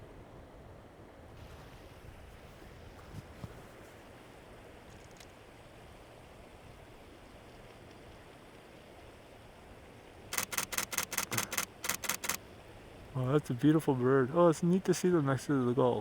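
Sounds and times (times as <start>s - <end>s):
faint wind and surf hiss: 0.0s - 16.0s
camera shutter clicking rapidly: 10.3s - 12.4s.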